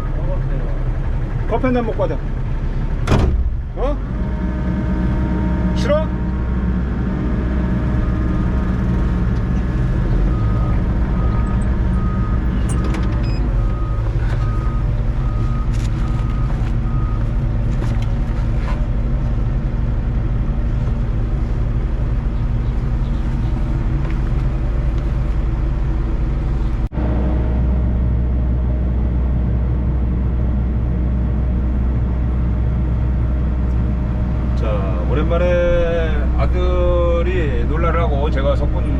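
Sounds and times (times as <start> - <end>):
excavator diesel engine running: 0.0 - 38.9
sharp knocks: 3.0 - 3.6.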